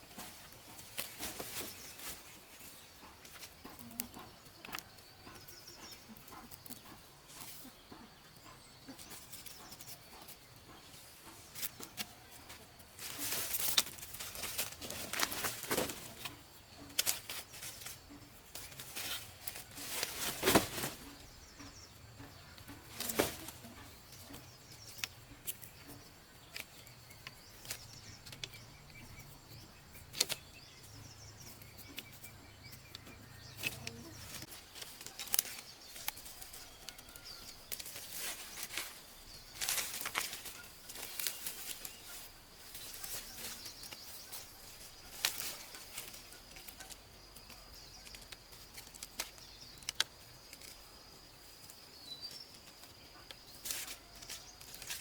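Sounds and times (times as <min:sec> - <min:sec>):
birds chirping faintly: 0:00.0 - 0:55.0
rustling: 0:11.3 - 0:21.8, 0:30.0 - 0:55.0.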